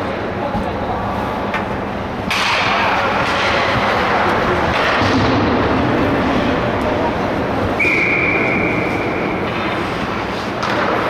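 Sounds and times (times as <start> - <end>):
referee whistle blast: 7.8 - 8.8.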